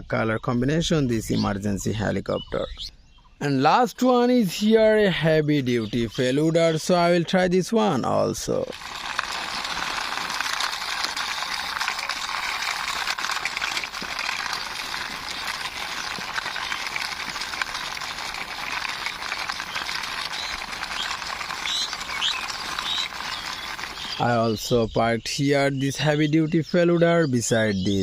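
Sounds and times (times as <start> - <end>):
plastic toy wheels rattling: 8.4 - 24.4.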